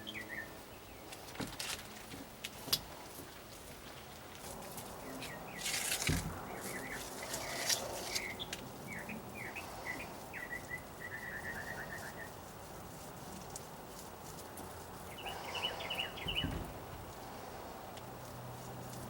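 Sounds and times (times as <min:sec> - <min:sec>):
bird chirping: 0:00.0 - 0:01.3, 0:05.0 - 0:12.4, 0:15.0 - 0:16.7
rustle: 0:00.0 - 0:19.0
dull thump: 0:06.0 - 0:06.4, 0:16.2 - 0:17.2.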